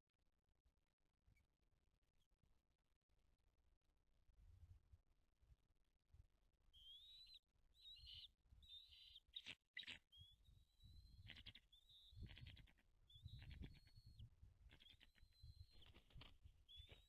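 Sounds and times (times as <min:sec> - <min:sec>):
birds calling with high whistles: 0:06.8 - 0:17.0.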